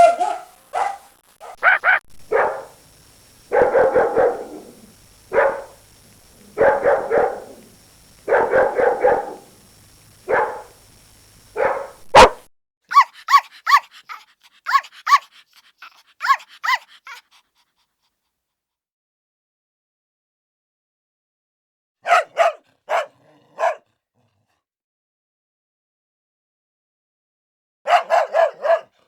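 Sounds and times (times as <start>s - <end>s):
high-pitched yelps: 0.0s - 2.7s, 11.7s - 17.4s
dog barking: 0.0s - 2.8s, 3.4s - 9.6s, 10.2s - 10.8s, 11.6s - 17.4s, 22.0s - 23.9s, 27.9s - 29.0s.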